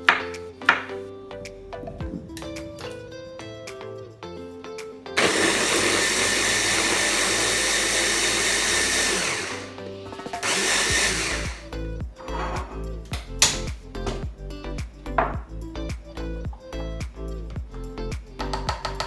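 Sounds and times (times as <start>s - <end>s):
blender crushing ice: 5.2s - 9.8s, 10.4s - 11.7s.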